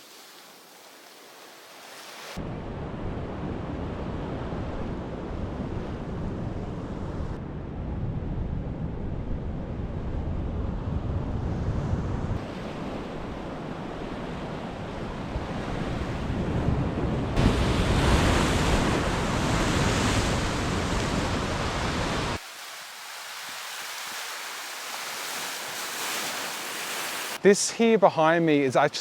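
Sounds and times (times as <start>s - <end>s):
ocean surf: 0.0s - 7.3s, 12.4s - 29.0s
wind buffeting microphone: 2.4s - 22.4s.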